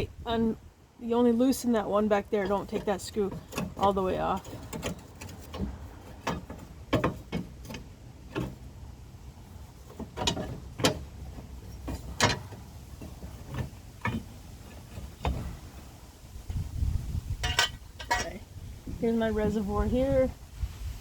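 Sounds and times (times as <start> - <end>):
hand tools clicking and knocking: 2.1 - 16.0, 17.4 - 18.4.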